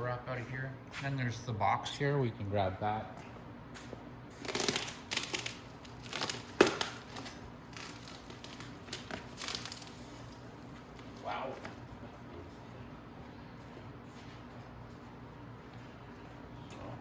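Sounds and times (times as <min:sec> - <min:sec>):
bubble wrap crinkling: 0:04.3 - 0:11.8.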